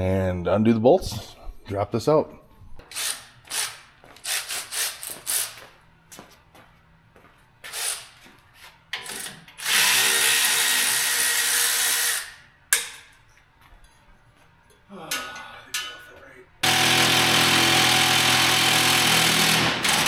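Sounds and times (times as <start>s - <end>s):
power wrench whirring: 2.9s - 5.6s, 9.0s - 12.4s, 16.6s - 20.0s.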